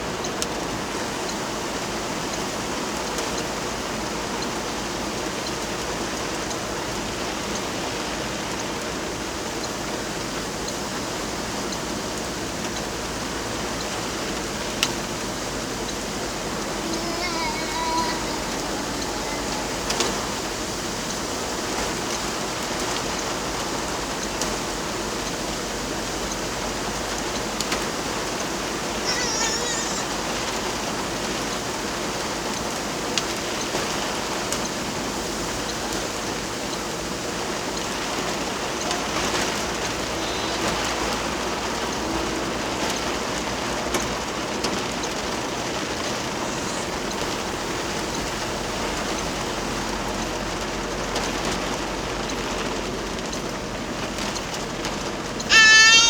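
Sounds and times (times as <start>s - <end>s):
heavy rain hissing: 0.0s - 56.0s.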